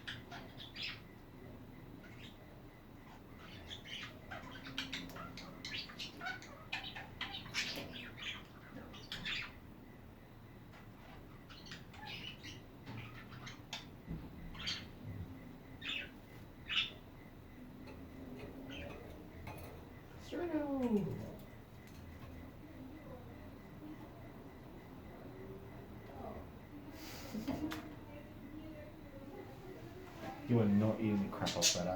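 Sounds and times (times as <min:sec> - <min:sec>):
budgerigars chirping: 0:00.0 - 0:01.1, 0:02.0 - 0:02.4, 0:03.0 - 0:09.7, 0:11.0 - 0:15.0, 0:15.8 - 0:17.0, 0:31.4 - 0:31.9.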